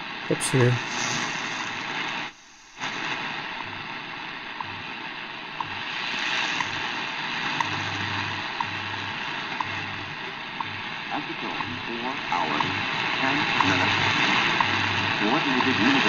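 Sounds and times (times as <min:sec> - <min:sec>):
shortwave radio static: 0:00.0 - 0:16.0
faint radio ticks: 0:03.6 - 0:16.0.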